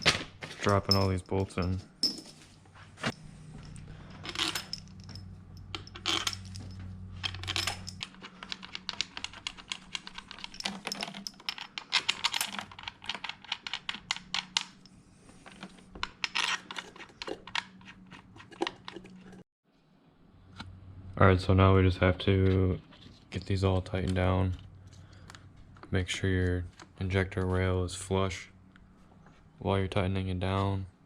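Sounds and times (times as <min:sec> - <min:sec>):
bolts clinking into metal holes: 0:00.0 - 0:02.2, 0:03.6 - 0:14.9.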